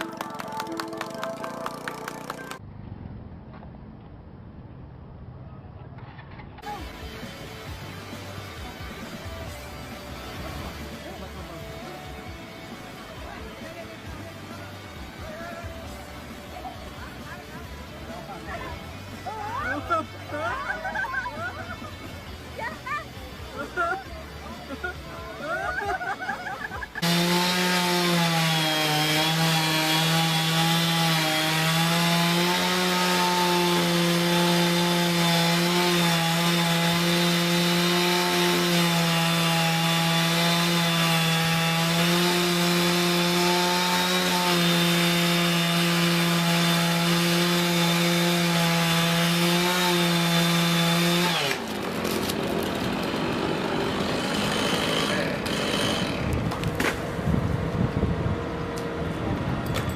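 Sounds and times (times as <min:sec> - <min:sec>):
chainsaw cutting wood: 0:25.7 - 0:57.1.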